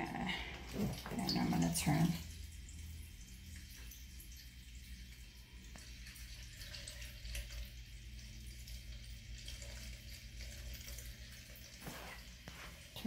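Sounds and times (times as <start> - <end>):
water trickling and dripping: 0.0 - 13.0.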